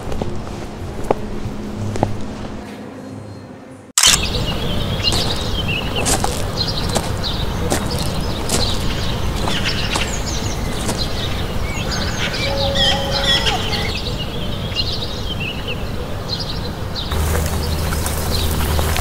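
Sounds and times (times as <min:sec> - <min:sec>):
small birds chirping: 0:04.0 - 0:19.0
steady low hum: 0:04.2 - 0:19.0
steady low rumble: 0:16.9 - 0:19.0.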